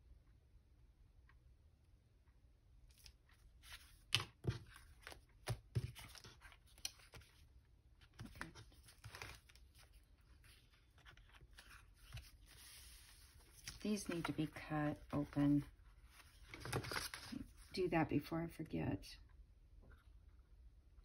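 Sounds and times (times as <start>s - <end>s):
paper rustling: 2.9s - 17.7s.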